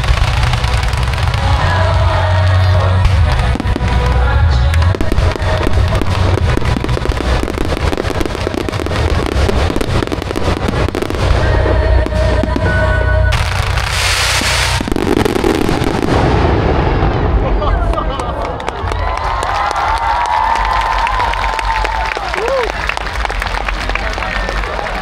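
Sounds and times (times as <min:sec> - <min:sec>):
fireworks crackling and bursting: 0:00.0 - 0:19.0.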